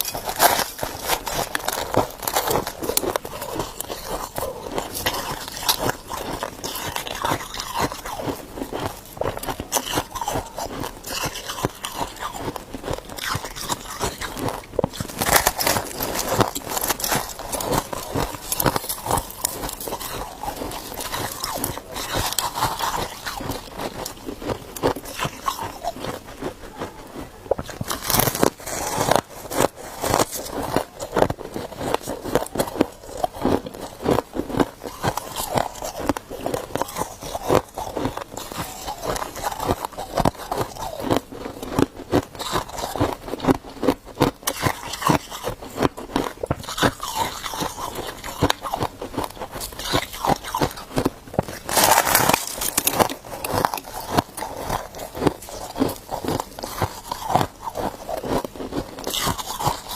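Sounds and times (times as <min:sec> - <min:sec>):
person chewing ice: 0:00.0 - 0:59.9.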